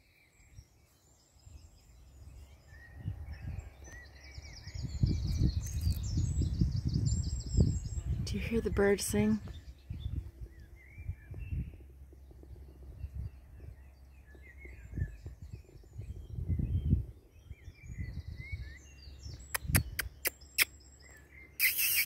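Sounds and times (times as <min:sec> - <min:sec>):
small birds singing: 0:00.0 - 0:22.0
sharp clicks: 0:19.4 - 0:20.7, 0:21.6 - 0:22.0.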